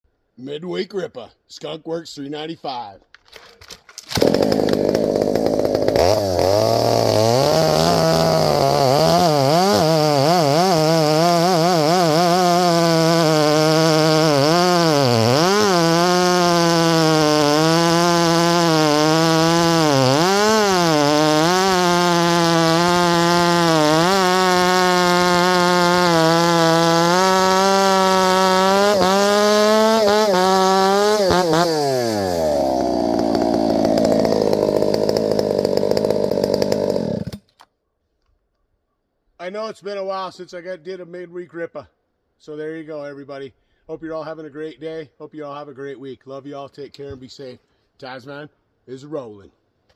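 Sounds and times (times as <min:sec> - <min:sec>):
chainsaw revving at full throttle: 0:04.1 - 0:37.5.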